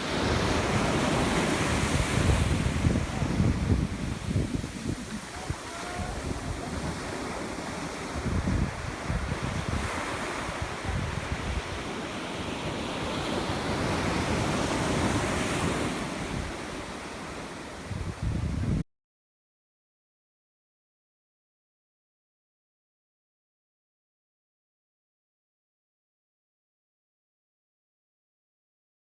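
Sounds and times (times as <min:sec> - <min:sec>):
ocean surf on beach: 0:00.0 - 0:18.8
wind buffeting microphone: 0:00.0 - 0:18.8.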